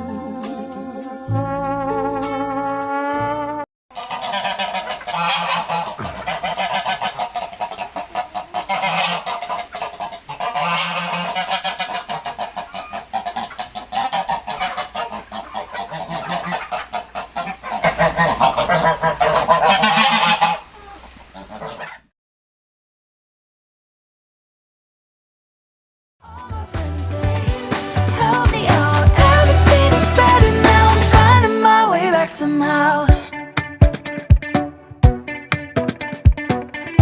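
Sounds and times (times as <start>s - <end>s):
song with brass: 1.0s - 3.7s, 26.6s - 31.5s
geese honking: 3.9s - 22.0s, 26.5s - 33.1s.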